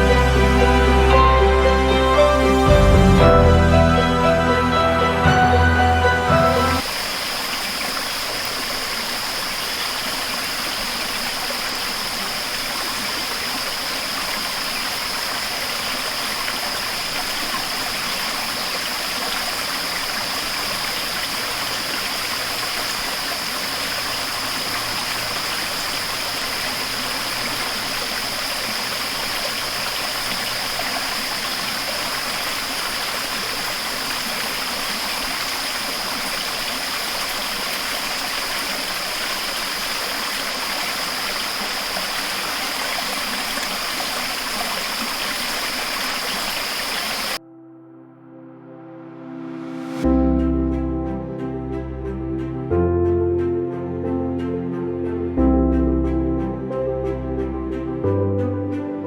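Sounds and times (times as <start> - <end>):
constant high-pitched note: 0.0 - 6.9
rushing water: 0.0 - 47.4.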